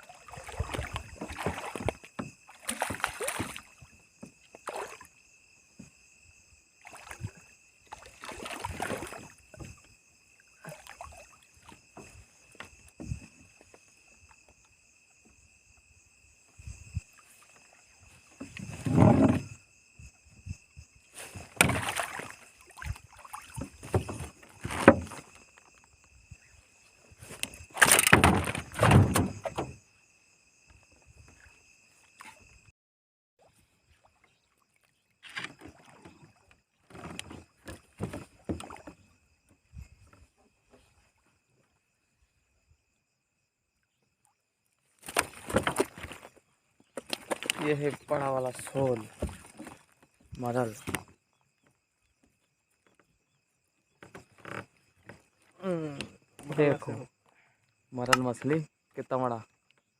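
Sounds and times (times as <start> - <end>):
water splashing and sloshing: 0.0 - 32.7, 33.4 - 59.9.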